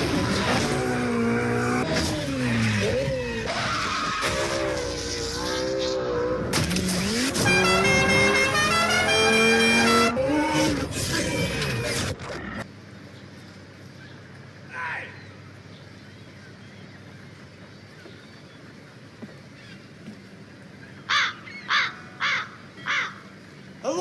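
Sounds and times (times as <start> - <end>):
rally car engine revving: 0.0 - 12.2
tyres skidding: 0.0 - 12.7.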